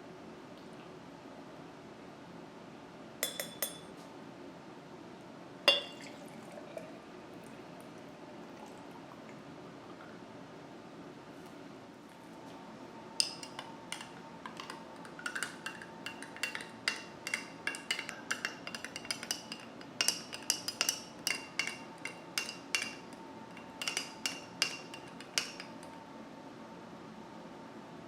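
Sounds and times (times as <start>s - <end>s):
spoon clinking in a glass: 3.2s - 4.0s, 5.7s - 6.2s, 13.2s - 26.0s.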